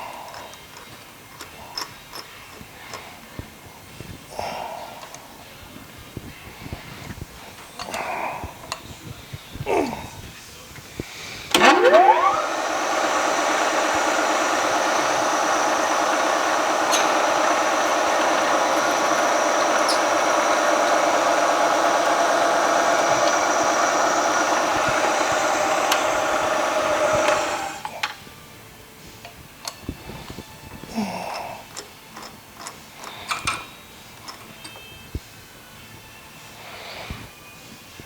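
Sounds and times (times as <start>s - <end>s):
milling machine spindle whine: 11.0s - 28.1s.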